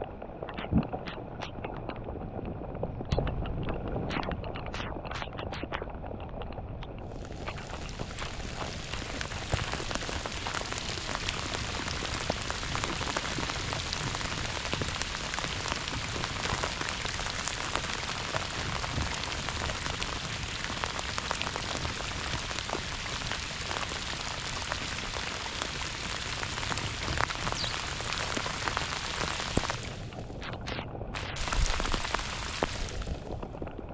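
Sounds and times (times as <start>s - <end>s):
steady rain falling: 6.4s - 33.9s.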